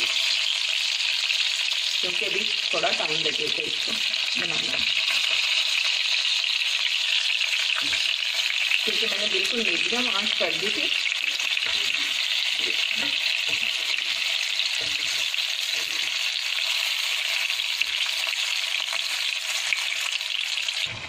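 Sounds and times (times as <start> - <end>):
chicken frying in oil: 0.0 - 21.0.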